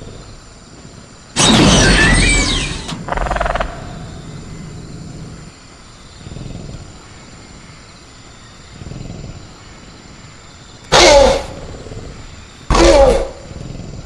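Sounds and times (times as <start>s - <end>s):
crickets chirring: 0.0s - 14.0s
creature screech: 1.4s - 4.0s
short rattling burst: 1.4s - 4.6s
low growl: 2.4s - 7.4s.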